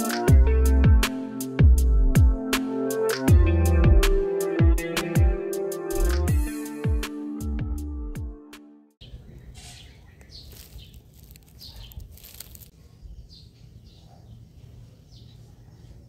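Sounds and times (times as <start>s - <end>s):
electronic background music: 0.0s - 9.0s
small birds chirping: 9.0s - 16.0s.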